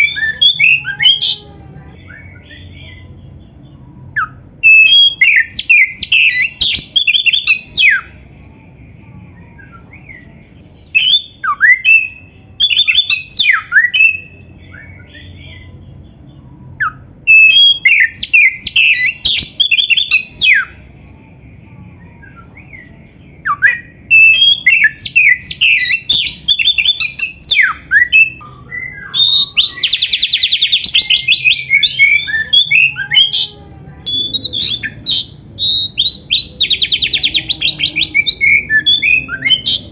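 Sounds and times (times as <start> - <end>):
songbird singing whistles and trills: 0.0 - 8.5, 9.3 - 16.2, 16.8 - 21.1, 22.0 - 39.9.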